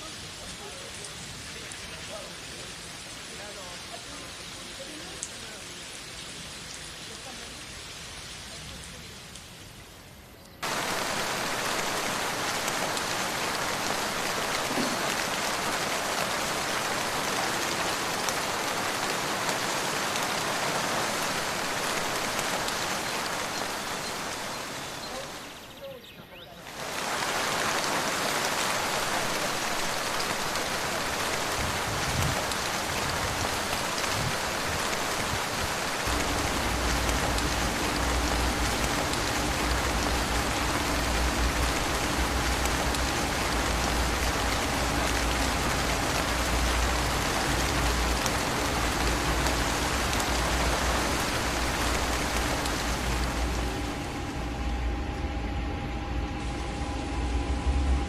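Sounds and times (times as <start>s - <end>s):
rain falling: 0.0s - 58.0s
low steady hum: 36.0s - 58.0s.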